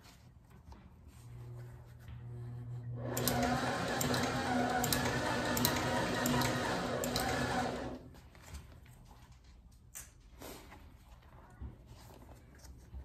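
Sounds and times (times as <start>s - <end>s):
motor hum: 1.5s - 8.1s
sewing machine stitching: 3.0s - 8.2s.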